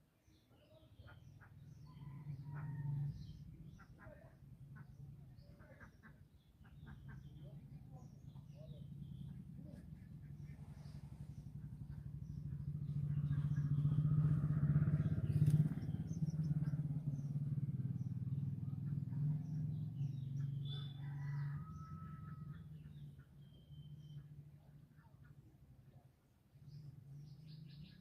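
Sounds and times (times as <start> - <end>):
small birds chirping: 0.0 - 28.0
vehicle engine passing by: 1.6 - 3.8, 7.1 - 24.2.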